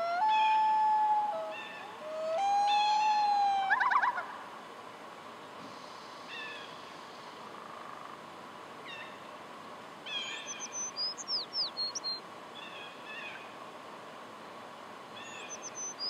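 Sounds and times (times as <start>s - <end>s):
songbird singing: 0.0s - 4.6s, 5.3s - 9.4s, 10.0s - 13.6s, 14.4s - 16.0s
short faint bird calls: 5.4s - 9.4s, 10.0s - 13.6s, 15.2s - 16.0s.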